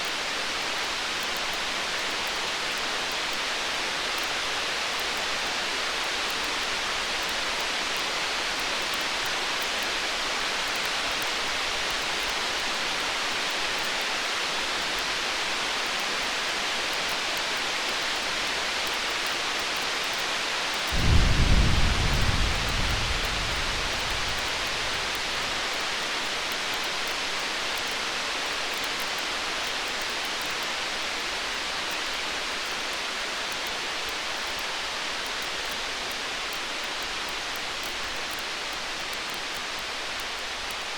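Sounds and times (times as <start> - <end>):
steady rain-like hiss: 0.0 - 40.9
distant thunder rumble: 20.9 - 25.9.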